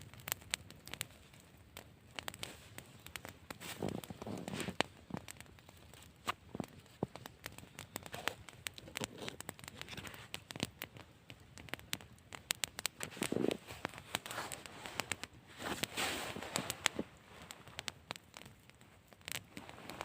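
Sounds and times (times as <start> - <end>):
crackling and snapping: 0.0 - 20.0
soft rustling: 2.2 - 10.6, 12.9 - 18.5.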